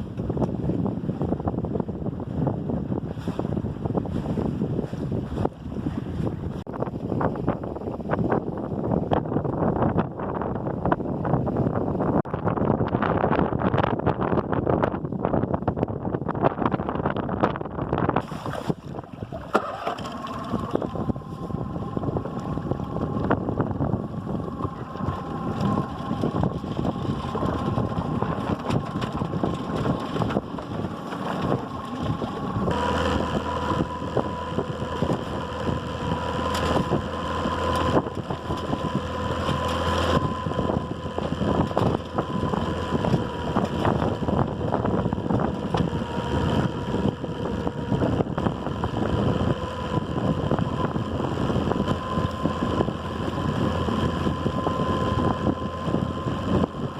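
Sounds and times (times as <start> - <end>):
boat motor hum: 0.0 - 56.9
deeper hum: 0.0 - 56.9
wind on microphone: 0.0 - 56.9
rushing water: 18.2 - 48.0.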